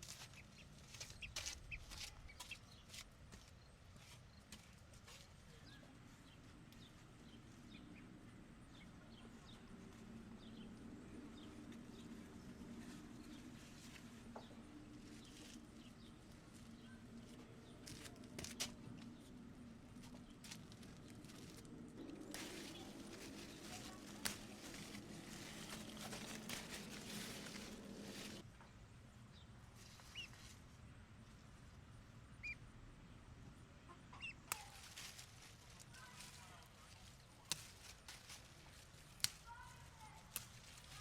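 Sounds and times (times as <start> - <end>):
chickens clucking: 33.8 - 34.9.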